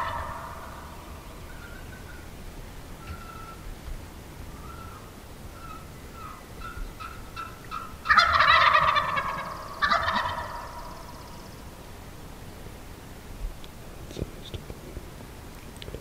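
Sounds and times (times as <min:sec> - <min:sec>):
turkey gobbling: 0:00.0 - 0:02.2, 0:03.0 - 0:03.6, 0:05.6 - 0:11.2.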